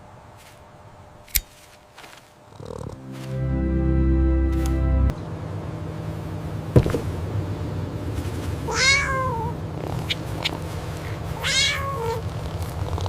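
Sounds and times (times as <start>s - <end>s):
low background rumble: 2.5s - 13.0s
cat meowing: 8.7s - 9.6s, 11.4s - 12.2s.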